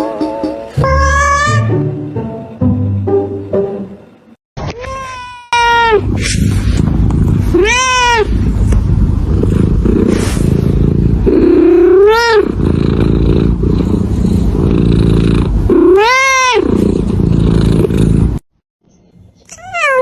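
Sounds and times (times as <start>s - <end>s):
cat meowing: 0.8s - 1.7s, 4.7s - 6.1s, 7.5s - 8.3s, 11.7s - 12.5s, 15.8s - 16.7s, 19.5s - 20.0s
steady low rumble: 6.0s - 11.9s.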